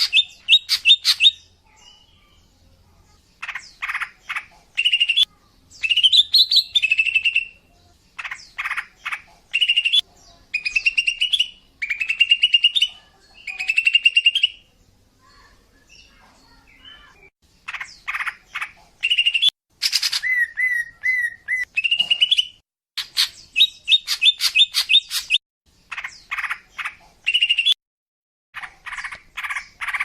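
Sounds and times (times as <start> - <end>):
bird chattering and trilling: 0.0 - 2.3, 3.4 - 14.7, 15.3 - 27.8, 28.6 - 30.0.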